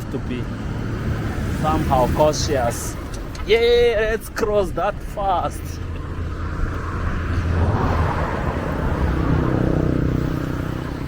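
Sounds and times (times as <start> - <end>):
tyre and road noise: 0.0 - 11.0
vehicle engine passing close: 5.8 - 11.0.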